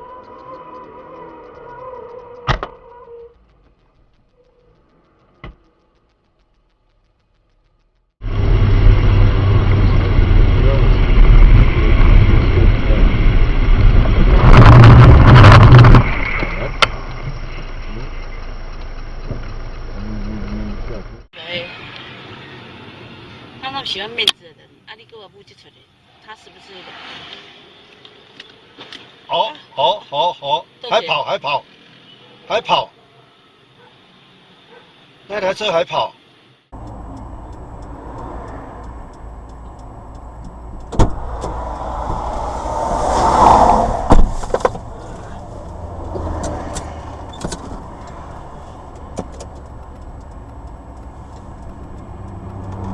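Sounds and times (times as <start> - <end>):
faint fast ticking: 0.0 - 8.2, 36.8 - 42.0, 45.2 - 52.9
steady road noise: 0.0 - 52.9
loud rumbling vehicle with crackling knocks: 1.5 - 21.3, 36.8 - 52.9
rush of noise: 3.4 - 17.2, 37.2 - 52.0
sudden loud bang: 40.9 - 45.3.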